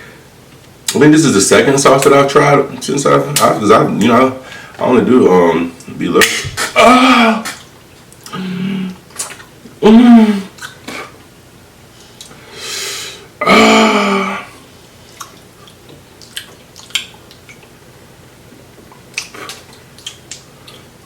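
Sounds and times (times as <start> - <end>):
wet mouth sounds: 15.1 - 17.7, 18.9 - 20.9.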